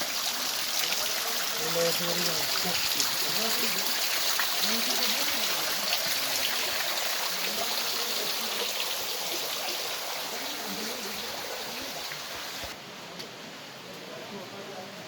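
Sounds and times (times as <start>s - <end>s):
creek water rushing: 0.0s - 12.8s
faint voices: 0.0s - 15.0s.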